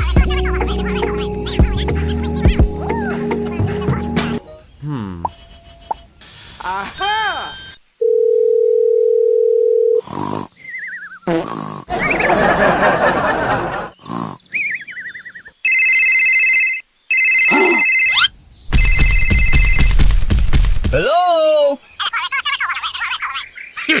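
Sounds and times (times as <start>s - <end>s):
steady beep tone: 7.0s - 7.8s, 15.7s - 20.0s
ringing alarm bursts: 15.7s - 20.0s.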